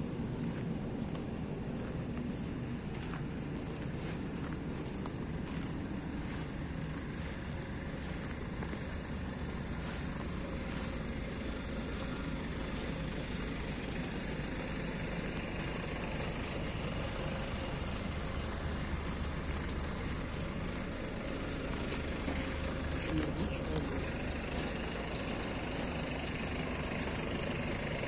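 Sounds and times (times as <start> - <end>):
distant road traffic rumble: 0.0 - 28.0
footsteps on icy ground: 0.0 - 28.0.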